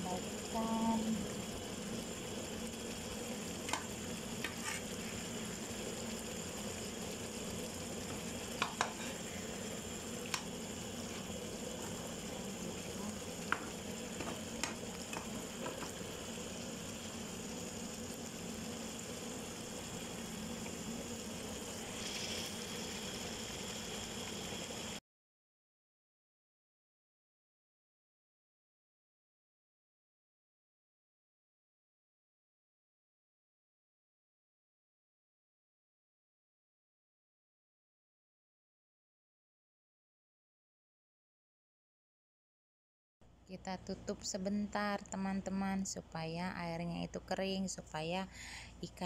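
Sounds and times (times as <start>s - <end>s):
fish sizzling in frying pan: 0.0s - 25.0s
spatula clicking against pan: 8.6s - 9.0s.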